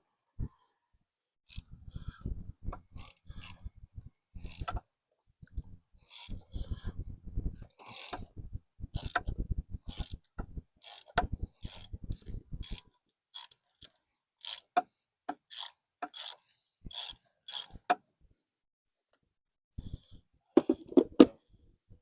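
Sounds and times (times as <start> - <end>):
ratchet wrench clicking: 1.5 - 1.7, 3.0 - 3.6, 4.4 - 4.8, 6.1 - 6.4, 7.9 - 8.3, 8.9 - 9.3, 9.9 - 17.9.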